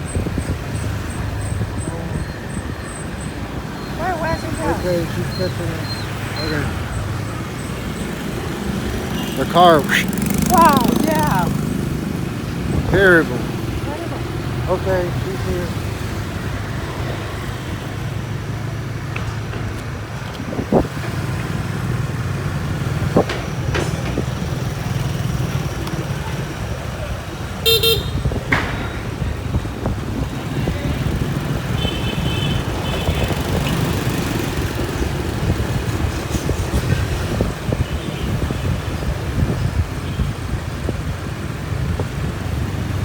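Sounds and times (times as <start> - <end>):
motorbike engine and road noise: 0.0 - 43.0
horn beeps: 27.7 - 28.3.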